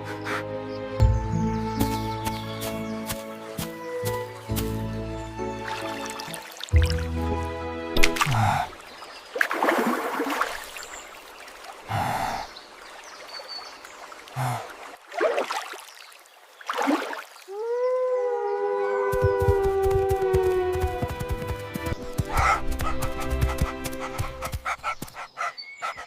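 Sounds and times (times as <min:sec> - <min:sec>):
wolf howling: 0:17.5 - 0:21.2.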